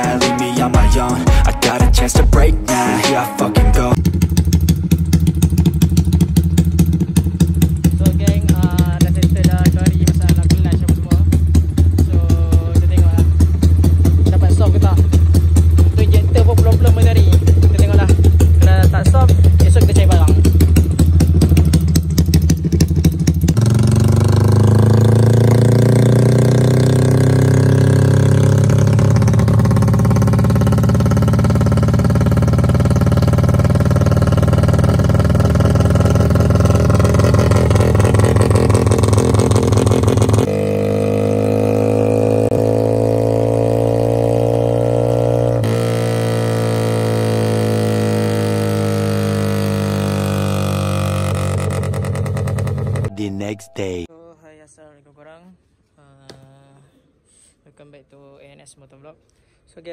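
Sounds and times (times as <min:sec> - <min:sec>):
motorcycle engine revving: 0:00.0 - 0:54.1.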